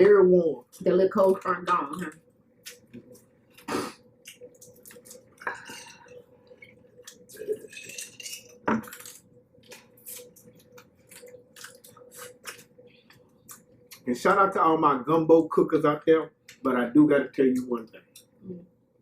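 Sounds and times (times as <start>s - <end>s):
faint steady hum: 0.0s - 19.0s
crab shell cracking: 3.6s - 5.5s, 7.0s - 12.8s.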